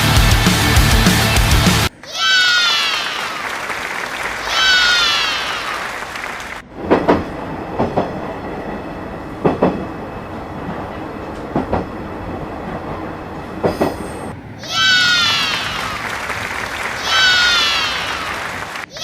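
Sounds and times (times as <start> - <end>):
music: 0.0 - 1.9
train running on rails: 0.0 - 19.0
wheels clacking over rail joints: 6.6 - 18.9.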